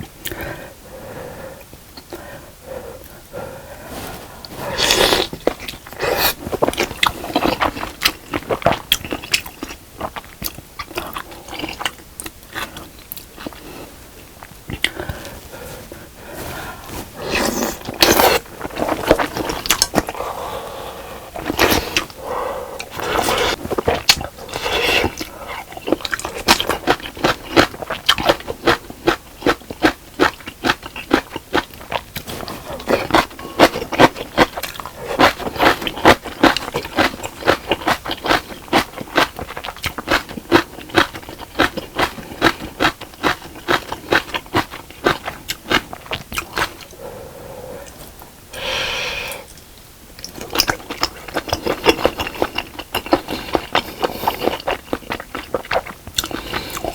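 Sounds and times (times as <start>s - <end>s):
wet chewing and smacking: 4.4s - 15.5s, 16.9s - 20.2s, 22.8s - 47.0s, 50.2s - 56.9s
slurping: 14.7s - 28.4s.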